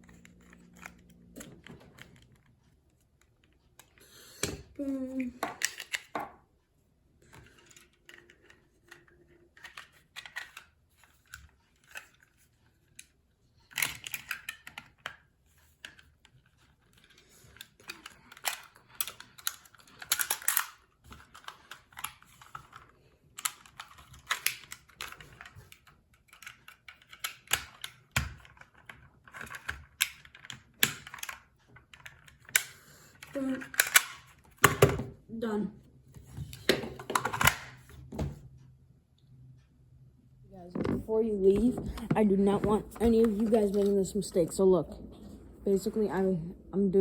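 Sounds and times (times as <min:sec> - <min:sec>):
plastic toy pistol clicking and rattling: 0:00.0 - 0:02.6, 0:03.2 - 0:06.2, 0:07.3 - 0:35.0, 0:36.6 - 0:37.9.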